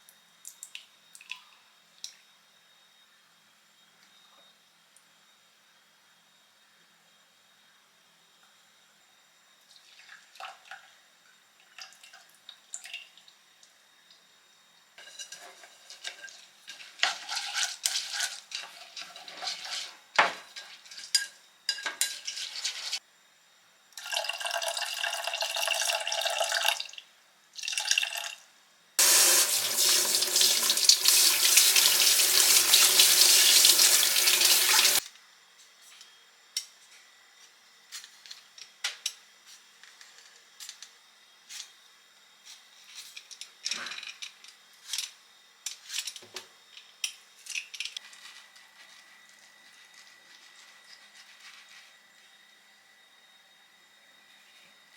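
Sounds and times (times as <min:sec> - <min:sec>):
dishes and utensils clinking: 0:15.0 - 0:23.0
tap water running into sink: 0:29.0 - 0:35.0.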